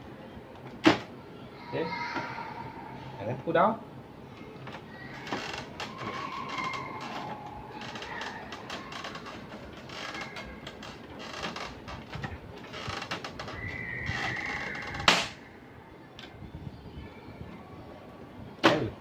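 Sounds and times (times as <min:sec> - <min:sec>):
plastic parts clicking and creaking: 0:04.6 - 0:15.4.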